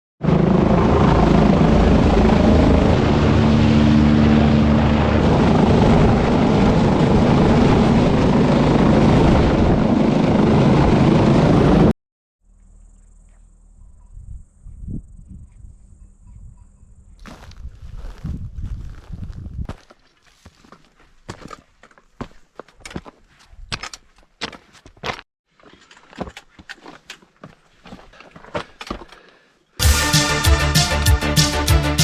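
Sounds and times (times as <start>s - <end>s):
helicopter rotor and engine: 0.2s - 11.9s.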